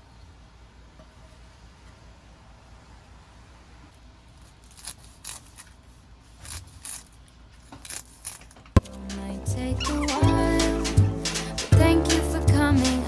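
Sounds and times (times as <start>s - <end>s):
small objects scraping and clicking: 4.3s - 8.8s.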